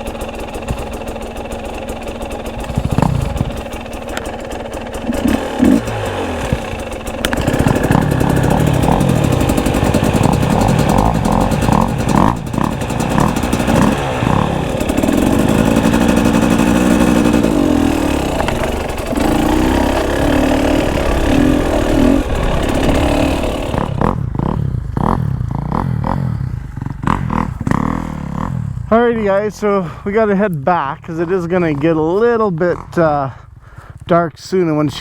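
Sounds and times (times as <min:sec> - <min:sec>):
dirt bike engine revving: 0:00.0 - 0:35.0
wind on microphone: 0:19.9 - 0:25.5.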